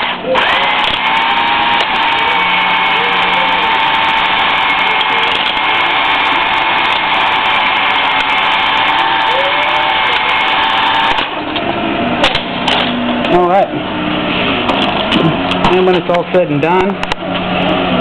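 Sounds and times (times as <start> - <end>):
electric drill whining: 0.0 - 11.4.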